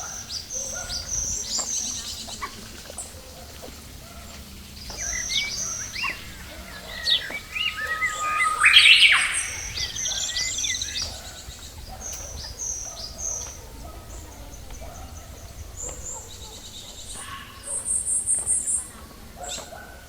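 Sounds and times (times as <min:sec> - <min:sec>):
wild birds chirping: 0:00.0 - 0:20.0
rasping rising bird call: 0:05.1 - 0:11.0.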